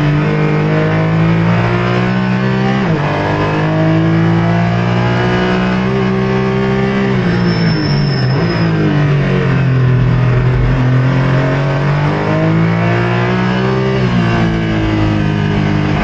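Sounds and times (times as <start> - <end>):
car engine accelerating hard: 0.0 - 7.5, 8.4 - 16.0.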